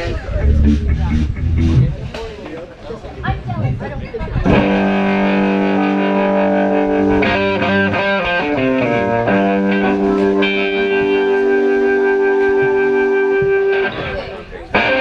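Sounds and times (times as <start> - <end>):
electric guitar notes: 4.4 - 15.0.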